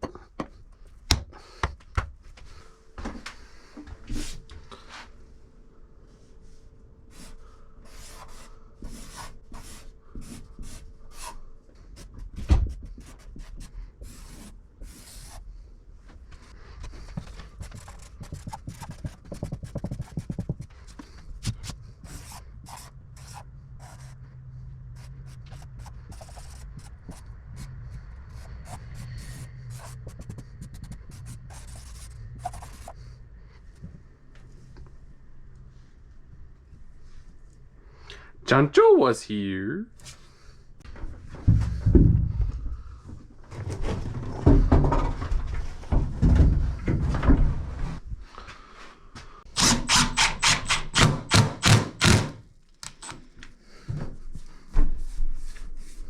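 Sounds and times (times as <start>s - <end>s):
low steady hum: 1.9s - 43.4s
rubbing and scraping strokes: 7.1s - 15.6s, 16.4s - 33.2s
heavy thump: 41.4s - 42.9s.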